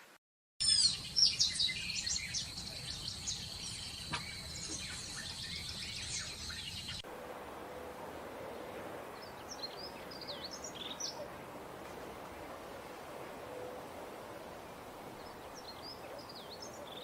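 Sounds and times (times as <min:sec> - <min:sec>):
songbirds chirping and whistling: 0:00.6 - 0:07.0, 0:09.0 - 0:11.4, 0:15.1 - 0:17.0
low outdoor hiss: 0:00.6 - 0:17.0.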